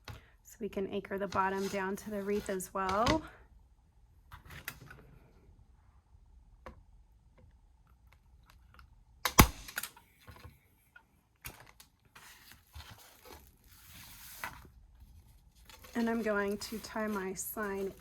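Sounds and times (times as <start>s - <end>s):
staple gun firing: 9.3s - 9.9s
handling noises: 11.4s - 18.0s.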